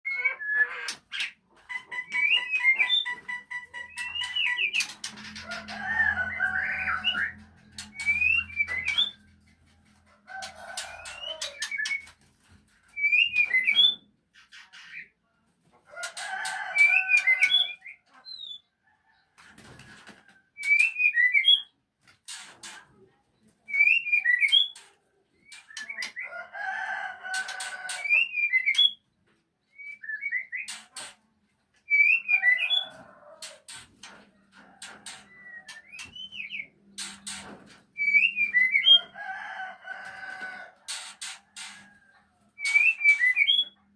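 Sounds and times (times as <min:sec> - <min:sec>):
rooster crowing: 0:05.4 - 0:07.4, 0:15.9 - 0:17.4, 0:26.3 - 0:28.1, 0:39.0 - 0:40.8
bird whistled song: 0:06.6 - 0:09.2, 0:13.0 - 0:14.1, 0:20.6 - 0:21.7, 0:31.9 - 0:32.9, 0:38.0 - 0:39.0, 0:42.6 - 0:43.8.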